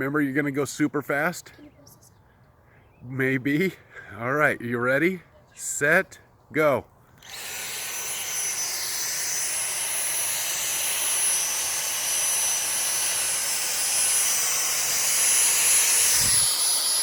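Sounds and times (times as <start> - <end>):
cordless vacuum whining: 7.2 - 17.0.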